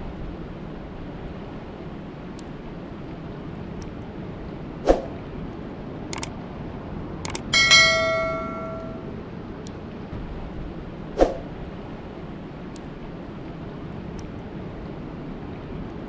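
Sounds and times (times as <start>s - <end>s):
steady rushing noise: 4.8s - 5.2s, 11.2s - 11.5s
knocks and clicks: 7.3s - 9.0s
bell-like metallic ring: 7.4s - 9.2s.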